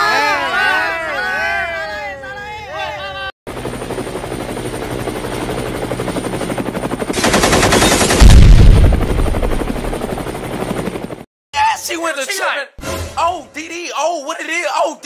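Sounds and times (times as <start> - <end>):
helicopter rotor chopping: 3.5 - 11.2
machine-gun fire: 7.1 - 9.9
loud deep explosion: 7.4 - 9.5.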